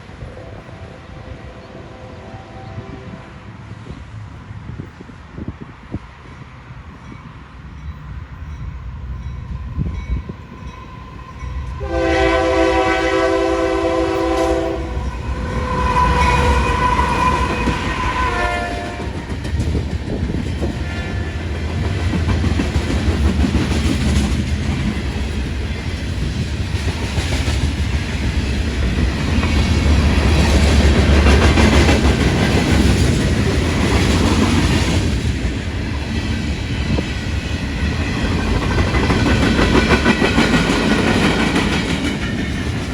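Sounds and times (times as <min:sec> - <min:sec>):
train rumbling with rail clatter: 0:00.0 - 0:42.9
train air horn blasts: 0:00.2 - 0:03.5, 0:11.7 - 0:19.3.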